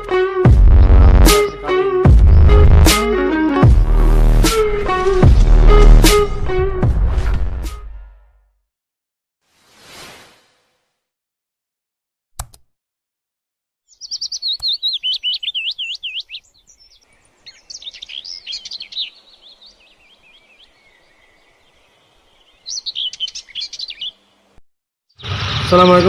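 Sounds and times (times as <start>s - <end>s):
songbird singing: 1.3s - 2.6s, 13.9s - 24.6s, 25.2s - 26.0s.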